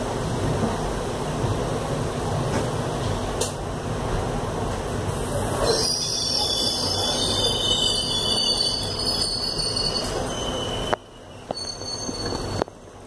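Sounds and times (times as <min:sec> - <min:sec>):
train wheels rumbling on rails: 0:00.0 - 0:13.0
high metallic wheel squealing: 0:05.7 - 0:12.6.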